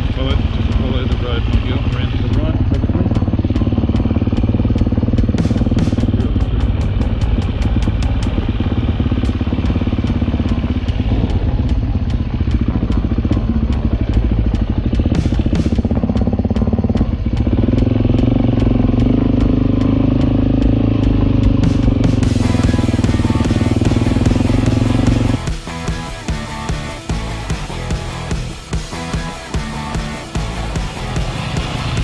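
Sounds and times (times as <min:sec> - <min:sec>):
dirt bike engine running: 0:00.0 - 0:32.0.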